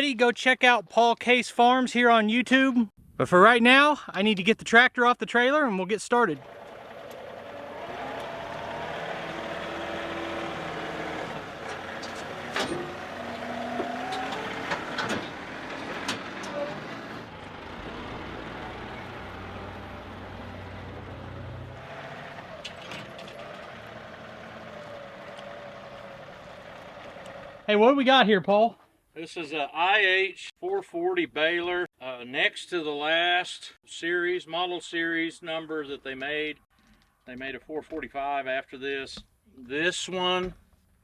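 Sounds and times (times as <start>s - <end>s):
tractor diesel engine running: 6.4s - 27.7s.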